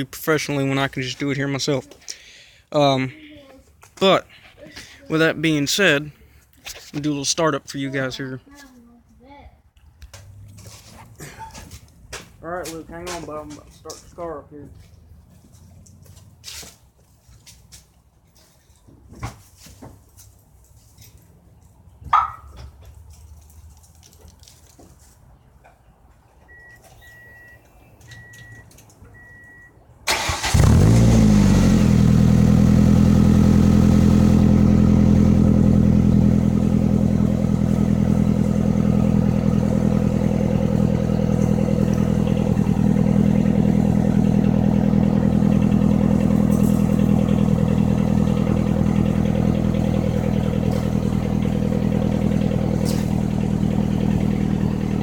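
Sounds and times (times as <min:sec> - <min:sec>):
car engine starting and idling: 0:26.4 - 0:55.0
short electronic beeps: 0:26.5 - 0:29.7.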